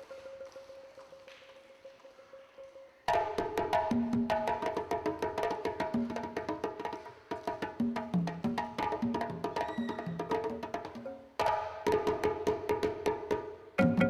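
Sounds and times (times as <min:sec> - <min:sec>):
wooden xylophone played fast: 0:13.8 - 0:14.0.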